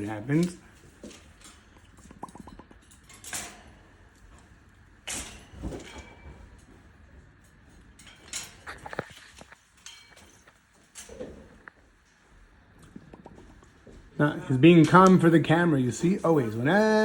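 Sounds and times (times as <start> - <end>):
knocks and rattles on parrot cage: 1.0 - 3.9, 5.0 - 11.8.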